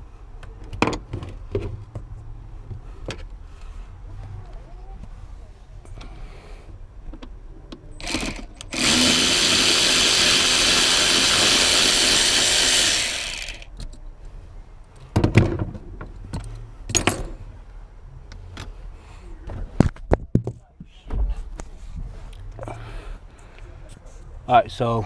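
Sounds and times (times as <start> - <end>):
power drill running: 8.0 - 13.7.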